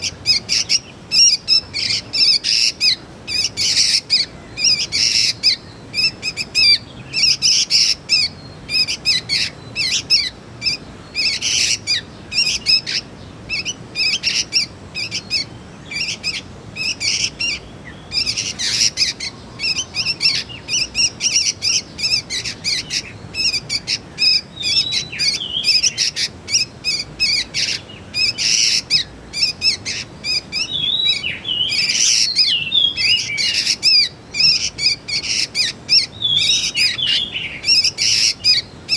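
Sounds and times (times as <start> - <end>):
young birds chirping rapidly: 0.0 - 38.9.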